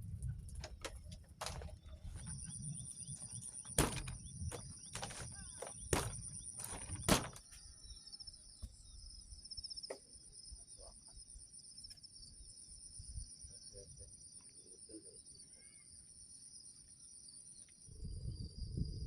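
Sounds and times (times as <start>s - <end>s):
insects trilling: 0.0s - 18.9s
sharp knocks: 3.7s - 7.4s.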